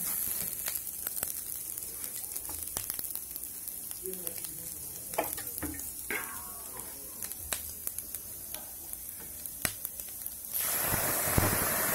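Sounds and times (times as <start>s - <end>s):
bamboo shoots sizzling in a wok: 0.0s - 11.9s.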